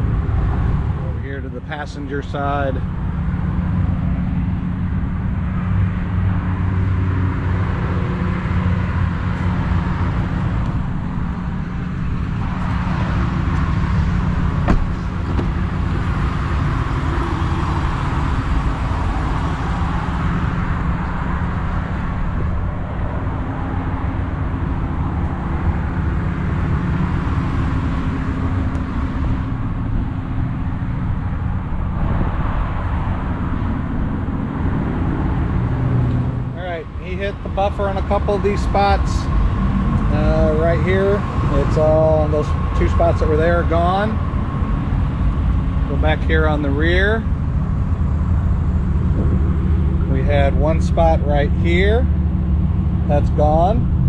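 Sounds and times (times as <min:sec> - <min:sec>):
vehicle engine running: 0:33.0 - 0:54.0.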